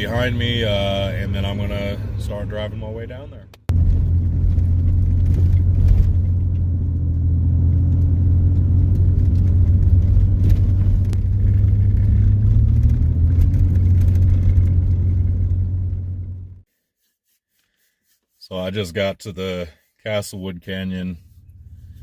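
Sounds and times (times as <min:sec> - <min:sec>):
vehicle driving rumble: 0:00.0 - 0:16.6.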